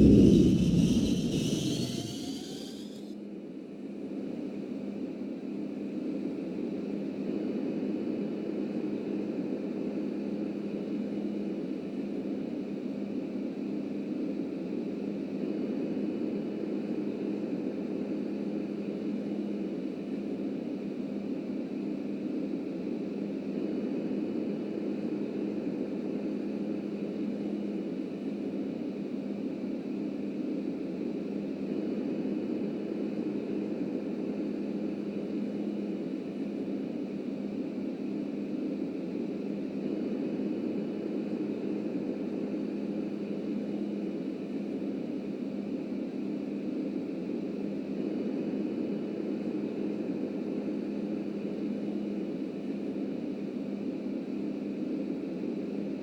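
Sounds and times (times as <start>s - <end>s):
subway train rumbling: 0.0s - 3.1s.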